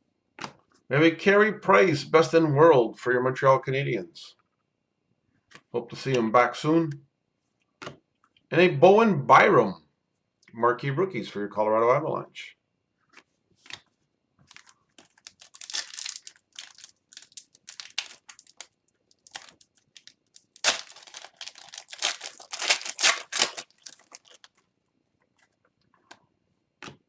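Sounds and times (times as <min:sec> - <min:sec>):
foil pack tearing and crinkling: 0:14.5 - 0:24.6.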